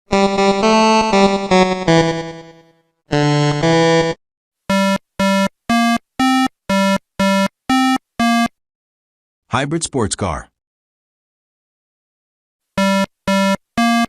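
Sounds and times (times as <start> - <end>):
synthesizer chords: 0.1 - 8.5
short synthesizer beeping notes: 1.0 - 8.5.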